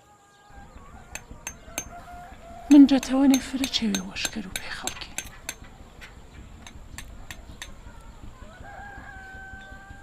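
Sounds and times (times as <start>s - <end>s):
rooster crowing: 0.4s - 3.2s, 7.3s - 10.0s
hammer and chisel on stone: 0.5s - 7.9s.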